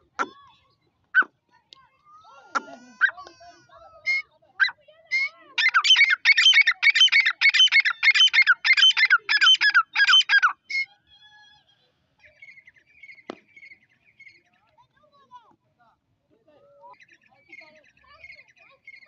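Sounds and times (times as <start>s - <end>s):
faint high bird calls: 3.9s - 11.0s, 12.2s - 14.7s
bird harsh ringing calls: 4.1s - 10.9s, 12.2s - 14.6s, 16.9s - 19.0s.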